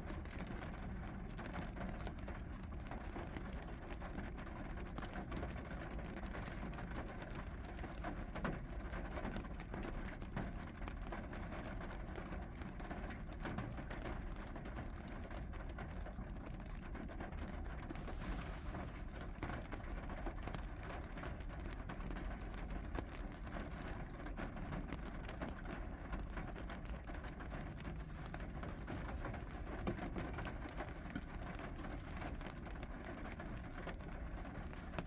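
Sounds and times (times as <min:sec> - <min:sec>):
steady rain falling: 0:07.4 - 0:35.0.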